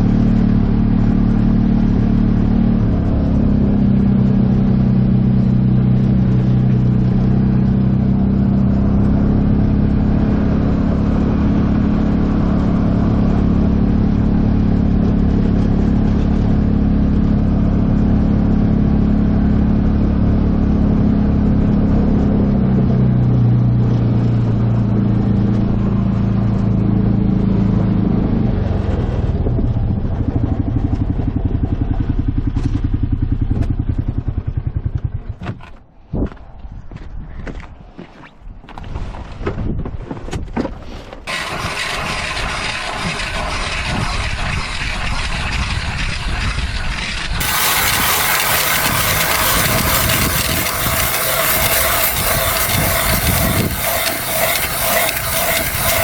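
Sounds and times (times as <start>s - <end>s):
single-cylinder engine running: 0.0s - 21.4s, 41.3s - 56.0s.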